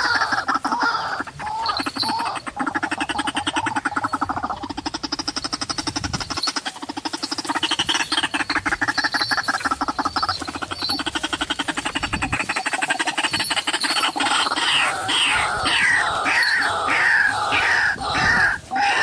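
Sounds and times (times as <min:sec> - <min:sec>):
waterhen calling harsh croaks: 0:00.0 - 0:19.0.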